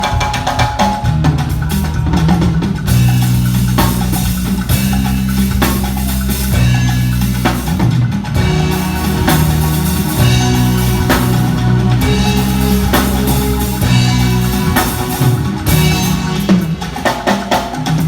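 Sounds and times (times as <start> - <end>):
drum kit playing: 0.0 - 18.0
bass line: 1.1 - 17.4
cymbal crashes: 8.4 - 18.0.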